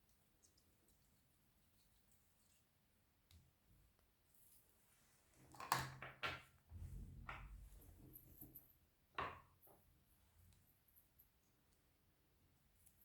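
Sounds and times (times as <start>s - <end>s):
low handling rumble: 6.7s - 8.2s.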